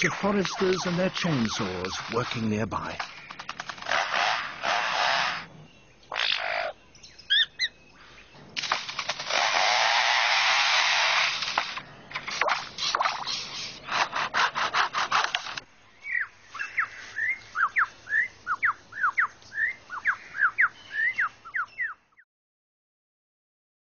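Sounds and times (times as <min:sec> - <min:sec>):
lyrebird mimicking chainsaws: 0:00.0 - 0:05.5, 0:06.1 - 0:07.7, 0:08.8 - 0:22.0
bird whistling sweeping notes: 0:16.0 - 0:22.0.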